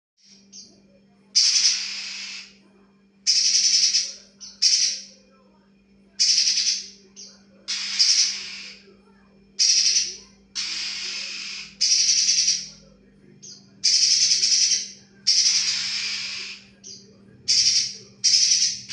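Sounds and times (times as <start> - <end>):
steady low hum: 0.2 - 18.9
bird harsh rasping calls: 1.4 - 2.6, 3.2 - 5.2, 6.2 - 8.8, 9.6 - 12.8, 13.4 - 18.9.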